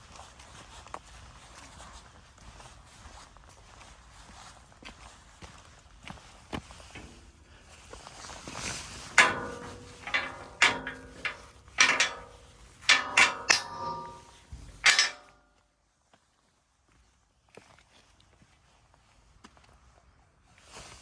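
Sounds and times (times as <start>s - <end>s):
sharp metallic clanks: 9.0s - 15.4s.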